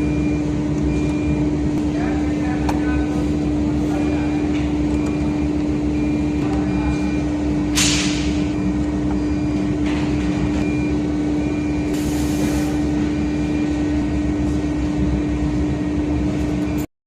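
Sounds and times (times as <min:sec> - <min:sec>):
milling machine motor hum: 0:00.0 - 0:16.8.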